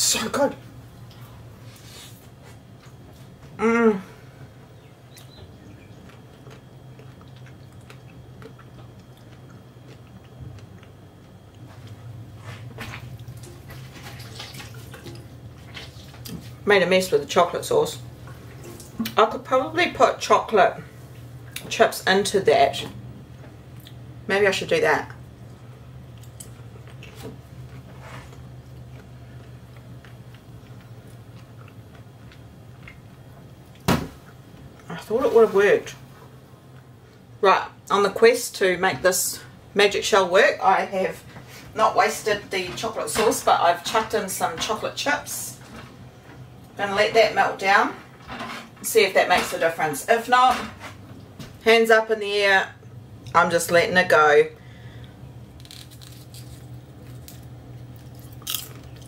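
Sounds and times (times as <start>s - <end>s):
steady low hum: 0.0s - 59.0s
person chewing crunchy food: 5.1s - 13.9s, 26.1s - 34.9s, 55.5s - 59.0s.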